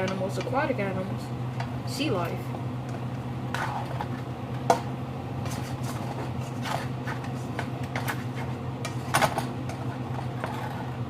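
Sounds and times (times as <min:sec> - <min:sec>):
steady low hum: 0:00.0 - 0:11.0
utensil scraping in a pot: 0:03.5 - 0:04.3, 0:05.4 - 0:09.1, 0:09.7 - 0:11.0.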